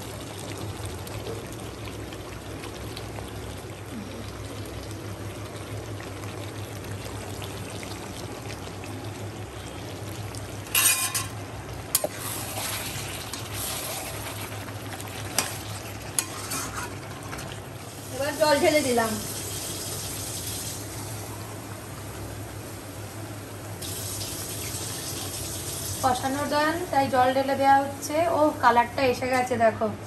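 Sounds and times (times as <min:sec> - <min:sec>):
meat sizzling in oil: 0:04.4 - 0:20.9, 0:23.8 - 0:28.2.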